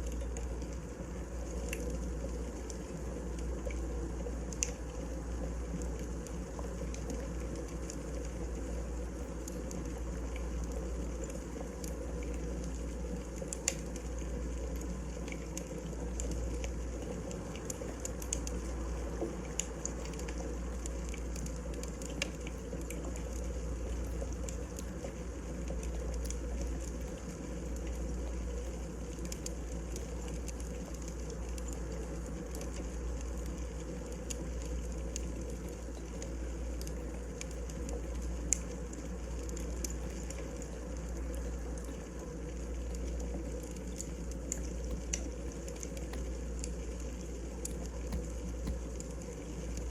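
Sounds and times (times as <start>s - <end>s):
wood fire crackling: 5.8s - 16.8s, 28.8s - 49.9s.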